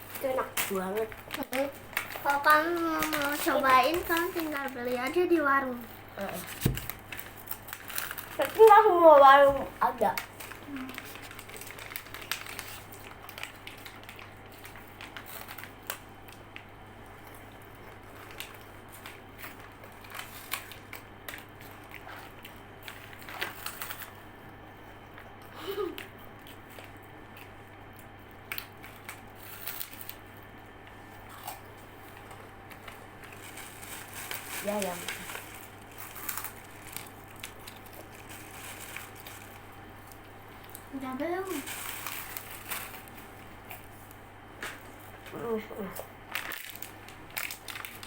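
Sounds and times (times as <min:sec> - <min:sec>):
snack packets crinkling: 0:00.0 - 0:24.3, 0:25.1 - 0:48.0
faint steady hum: 0:00.0 - 0:48.0
crunchy snacks being eaten: 0:31.2 - 0:40.9.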